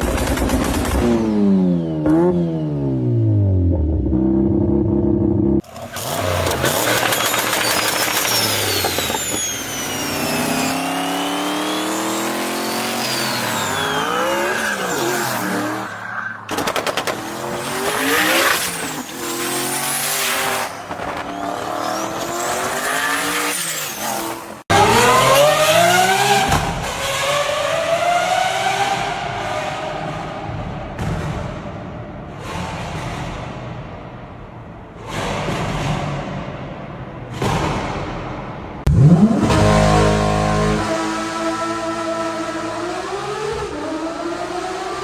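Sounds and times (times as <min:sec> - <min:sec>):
car engines revving: 0:00.0 - 0:38.0, 0:38.7 - 0:45.0
high squealing glides: 0:05.8 - 0:16.6, 0:17.6 - 0:26.4.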